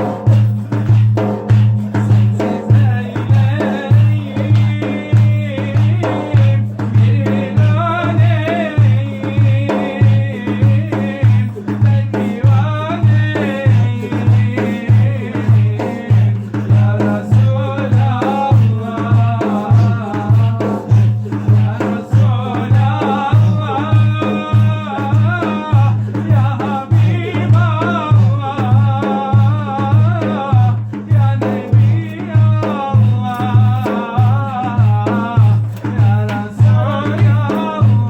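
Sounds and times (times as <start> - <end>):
low drum beat: 0.0 - 38.0.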